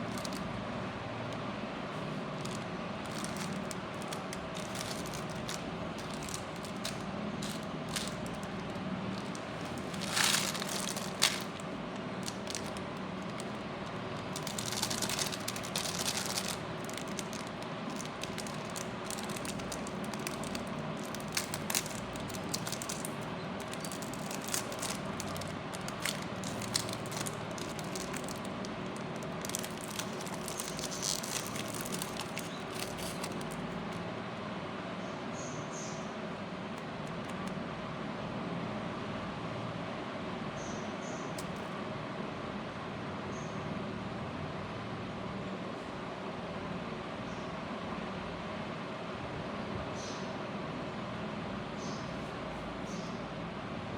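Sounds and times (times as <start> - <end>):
wrappers crinkling: 0.0 - 0.6, 1.3 - 34.0
steady background hum: 0.0 - 53.9.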